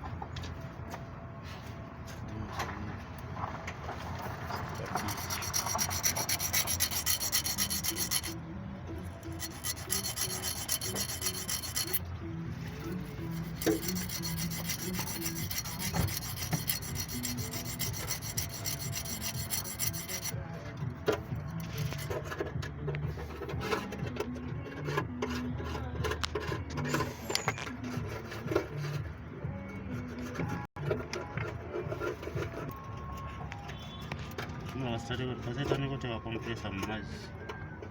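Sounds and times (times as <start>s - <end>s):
hand tool scraping metal: 4.2s - 8.4s, 9.0s - 12.0s, 12.7s - 20.4s, 21.1s - 22.5s, 23.2s - 29.1s.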